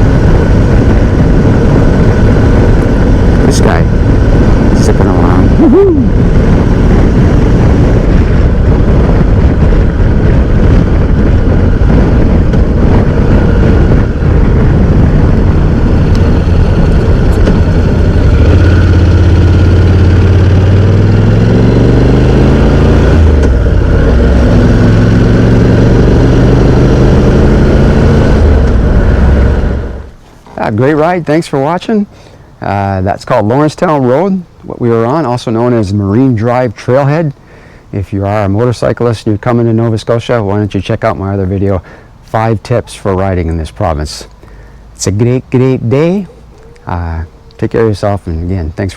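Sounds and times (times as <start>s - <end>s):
motorcycle engine running: 0.0s - 30.2s
wind noise: 0.0s - 48.9s.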